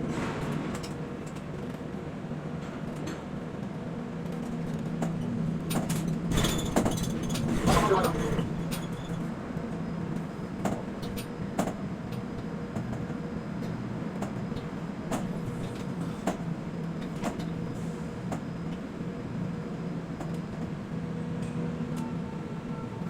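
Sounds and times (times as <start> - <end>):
crane machinery humming: 18.8 - 23.0.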